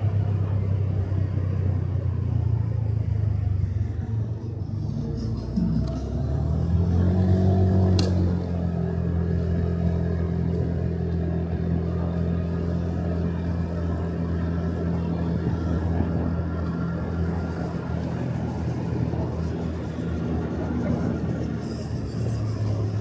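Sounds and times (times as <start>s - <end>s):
motorcycle engine accelerating: 0.0s - 23.0s
sharp click: 7.9s - 8.3s.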